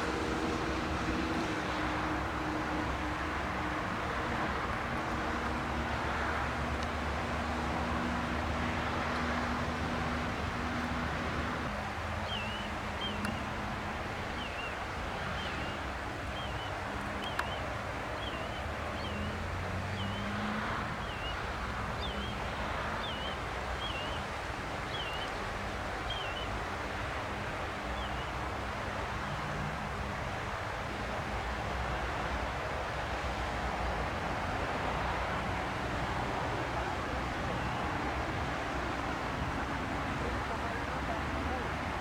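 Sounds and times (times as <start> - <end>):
outdoor rush with low hum: 0.0 - 42.0.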